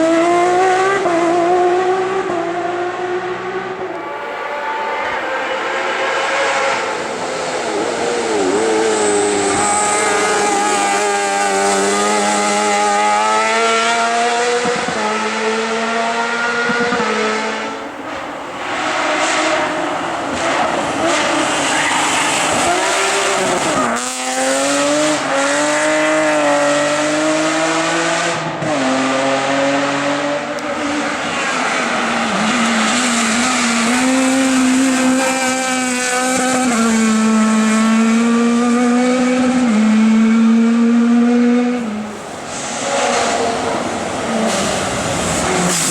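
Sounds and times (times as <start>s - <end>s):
race car engine at full throttle: 0.0s - 45.9s.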